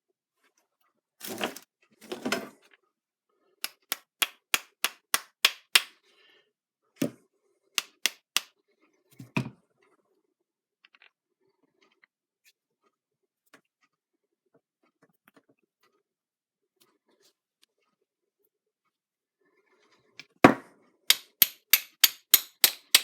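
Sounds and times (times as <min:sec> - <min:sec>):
metal-on-metal tapping: 0:03.6 - 0:05.9, 0:07.8 - 0:08.5, 0:21.1 - 0:23.0.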